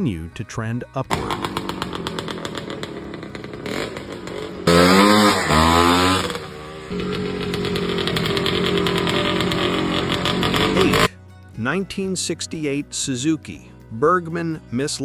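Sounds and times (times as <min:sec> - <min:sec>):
dirt bike two-stroke engine revving: 0:01.1 - 0:11.1.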